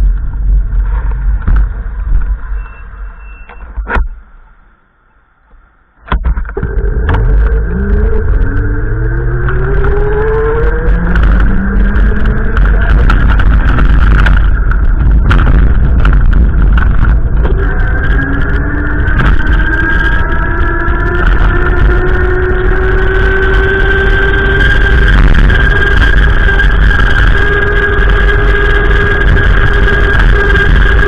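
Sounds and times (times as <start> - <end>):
wind buffeting microphone: 6.3 - 31.0
vehicle engine accelerating: 6.5 - 31.0.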